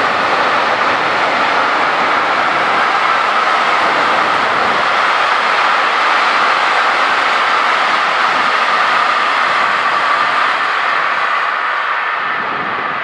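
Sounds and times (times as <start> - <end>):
train wheels rushing on rails: 0.0 - 13.0.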